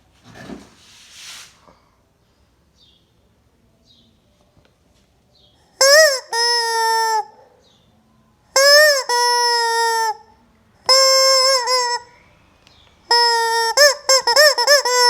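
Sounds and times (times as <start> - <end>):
squeaky chicken toy squawking: 5.8 - 7.4, 8.6 - 10.3, 10.9 - 12.1, 13.1 - 15.0.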